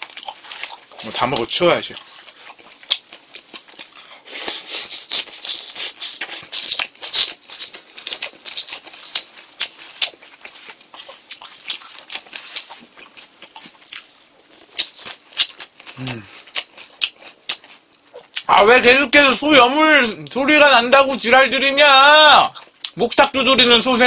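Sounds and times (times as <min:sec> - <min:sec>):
wet chewing and lip smacks: 0:00.0 - 0:18.5, 0:22.5 - 0:23.0.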